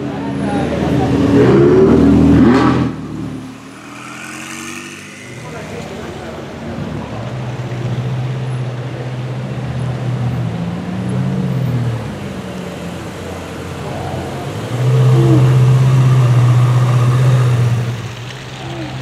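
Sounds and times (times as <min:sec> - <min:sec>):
car engine droning past: 0:00.5 - 0:08.1.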